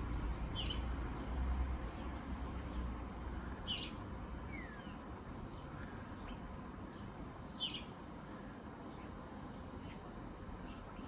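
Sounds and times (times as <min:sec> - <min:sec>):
small birds chirping: 0:00.0 - 0:02.9, 0:03.5 - 0:09.2.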